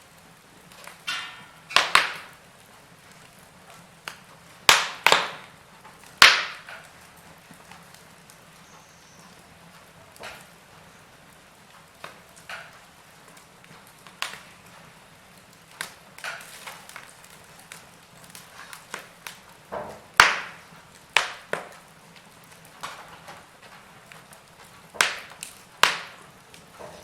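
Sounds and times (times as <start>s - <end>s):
faint steady hiss: 0.0s - 27.0s
wood fire crackling and popping: 0.0s - 27.0s.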